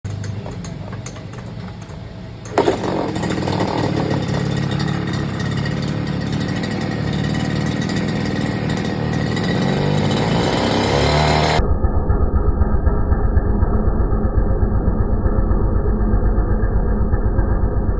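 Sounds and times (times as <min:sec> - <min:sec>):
small petrol engine running: 0:00.0 - 0:11.6.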